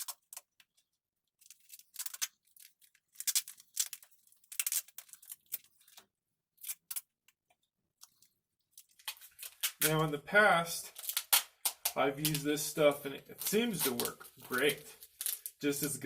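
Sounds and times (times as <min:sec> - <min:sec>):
duct tape ripping: 0:10.9 - 0:12.6, 0:13.3 - 0:15.6.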